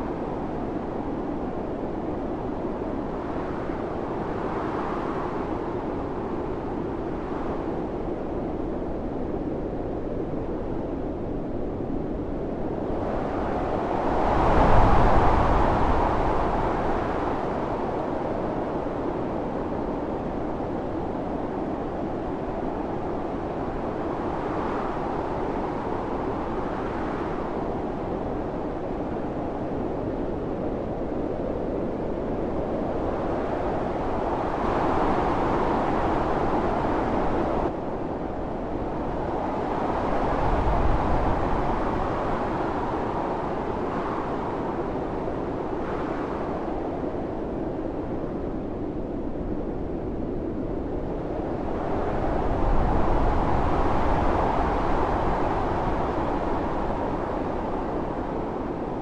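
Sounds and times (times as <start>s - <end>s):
howling snowstorm wind: 0.0s - 59.0s.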